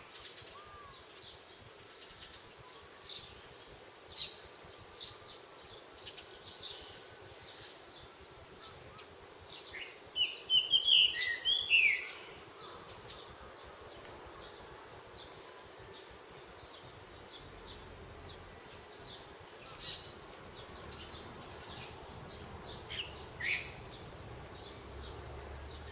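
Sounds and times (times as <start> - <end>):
birds chirping and singing: 8.6 - 25.9.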